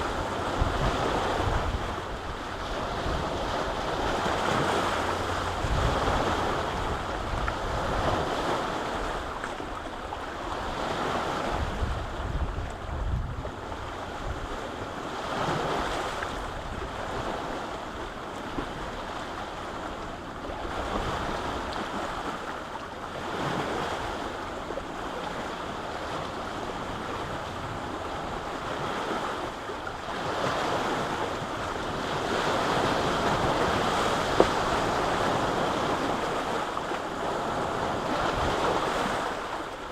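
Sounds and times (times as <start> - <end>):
wind buffeting microphone: 0.0 - 9.4, 10.4 - 17.6
waves washing ashore: 0.0 - 39.9.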